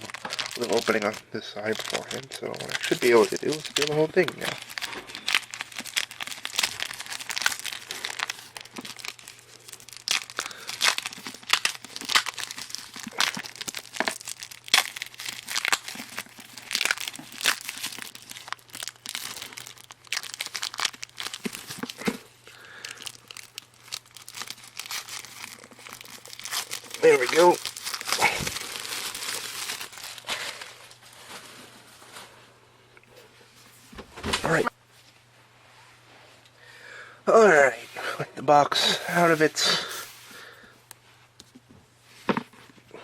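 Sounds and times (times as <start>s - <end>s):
plastic wrap crinkling and tearing: 0.0s - 31.5s.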